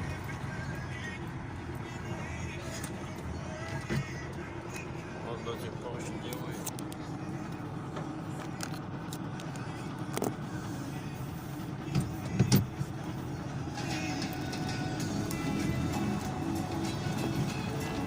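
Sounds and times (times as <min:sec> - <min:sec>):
car tyres and engine rumbling: 0:00.0 - 0:18.0.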